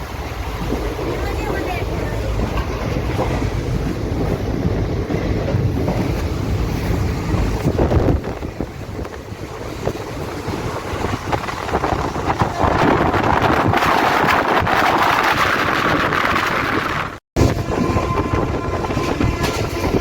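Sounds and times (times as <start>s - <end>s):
train rumble: 0.0s - 20.0s
wind buffeting microphone: 0.0s - 20.0s.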